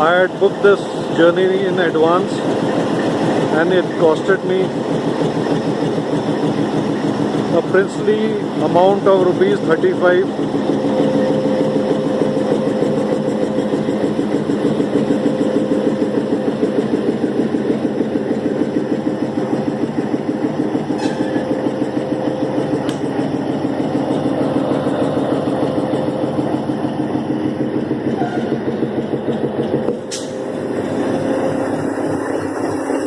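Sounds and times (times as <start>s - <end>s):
locomotive engine running: 0.0s - 33.0s.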